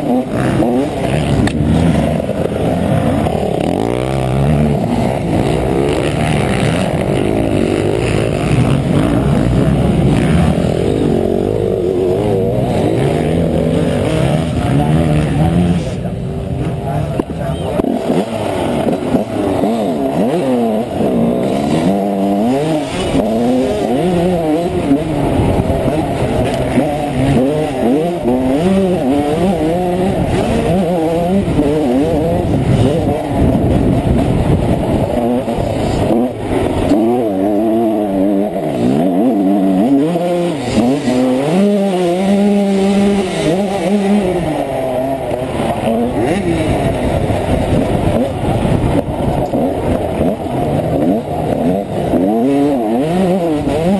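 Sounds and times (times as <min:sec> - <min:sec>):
two-stroke motocross engine revving: 0:00.0 - 0:53.9.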